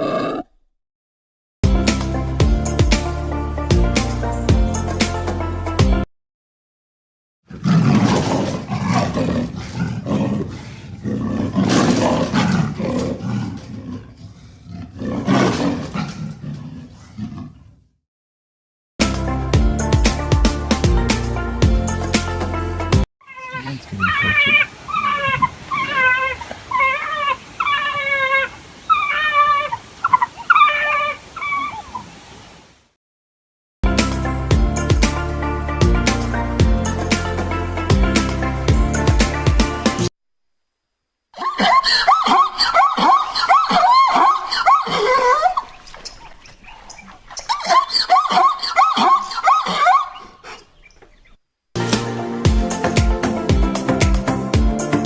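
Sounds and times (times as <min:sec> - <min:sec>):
large animal roaring and growling: 0:00.0 - 0:00.6, 0:07.5 - 0:17.8
animal whining calls: 0:23.2 - 0:32.2, 0:41.4 - 0:51.4.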